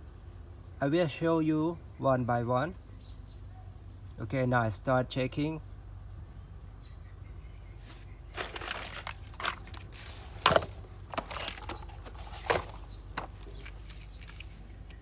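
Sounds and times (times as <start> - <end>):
plastic toys rustling and scraping: 7.8 - 14.9.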